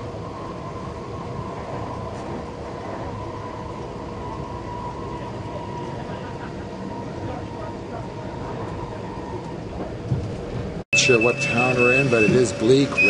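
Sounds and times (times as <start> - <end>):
faint steady whine: 0.0 - 13.0
train carriage rumble on track: 0.0 - 13.0.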